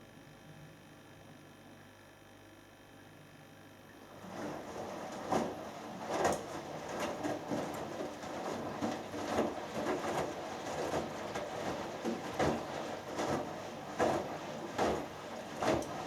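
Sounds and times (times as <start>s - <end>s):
water and laundry sloshing: 4.0s - 16.0s
heavy laundry slap: 4.2s - 16.0s
washing machine drum turning: 4.2s - 16.0s.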